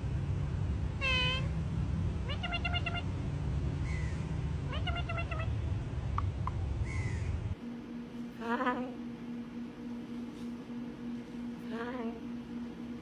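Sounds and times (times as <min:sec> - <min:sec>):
steady low hum: 0:00.0 - 0:13.0
parrot making meow-like calls: 0:01.0 - 0:01.5, 0:02.2 - 0:03.1, 0:03.9 - 0:05.5.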